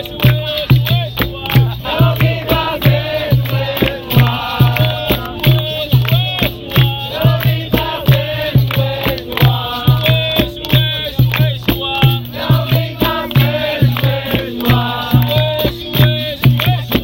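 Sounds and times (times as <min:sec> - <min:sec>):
group singing a chant: 0:00.0 - 0:17.0
hand drum rhythm: 0:00.0 - 0:17.0
rattle shaking: 0:00.0 - 0:17.0.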